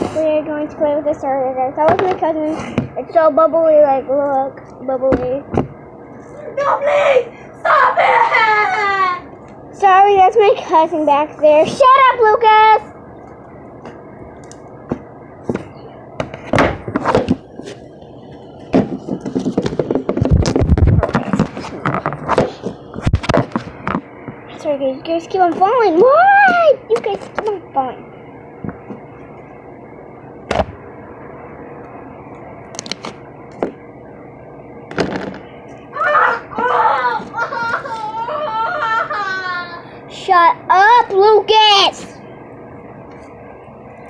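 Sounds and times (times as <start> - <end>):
steady background hiss: 0.0 - 44.0.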